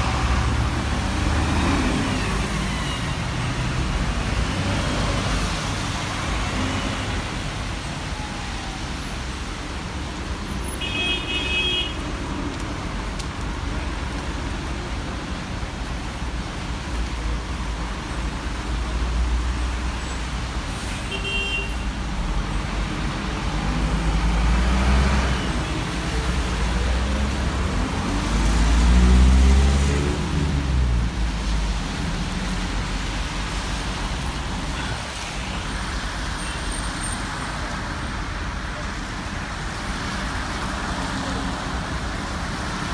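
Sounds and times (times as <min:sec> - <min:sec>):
heavy vehicles passing by: 0:00.0 - 0:08.3, 0:21.8 - 0:42.9
traffic on wet road: 0:00.0 - 0:42.9.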